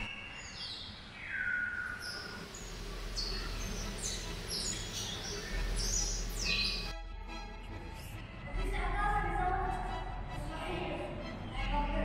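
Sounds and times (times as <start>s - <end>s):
birds chirping and whistling: 0.0s - 6.9s.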